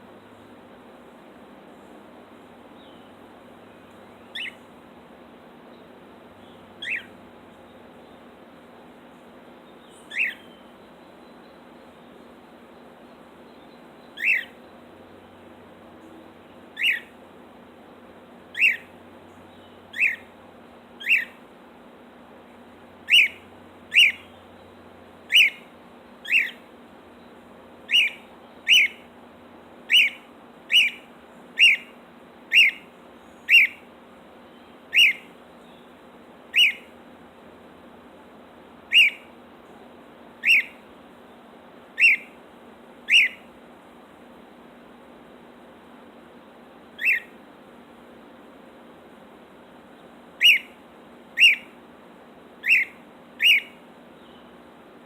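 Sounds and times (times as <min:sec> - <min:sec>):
cockatiel whistled chirps: 0:04.3 - 0:04.6, 0:06.8 - 0:07.1, 0:10.1 - 0:10.6, 0:14.2 - 0:14.6, 0:16.8 - 0:17.1, 0:18.6 - 0:18.9, 0:19.9 - 0:20.2, 0:21.0 - 0:21.4, 0:23.1 - 0:24.3, 0:25.3 - 0:25.6, 0:26.2 - 0:26.6, 0:27.9 - 0:29.0, 0:29.9 - 0:31.0, 0:31.6 - 0:31.9, 0:32.5 - 0:32.8, 0:33.5 - 0:33.8, 0:34.9 - 0:35.3, 0:36.5 - 0:36.9, 0:38.9 - 0:39.2, 0:40.4 - 0:40.8, 0:42.0 - 0:42.3, 0:43.1 - 0:43.4, 0:47.0 - 0:47.3, 0:50.4 - 0:50.7, 0:51.4 - 0:51.7, 0:52.6 - 0:53.8.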